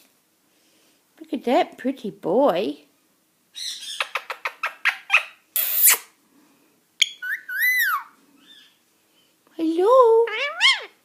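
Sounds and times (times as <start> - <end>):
parrot squawk: 3.6 - 6.0, 7.0 - 8.8, 10.3 - 11.0
parrot whistled chirps: 7.0 - 8.7.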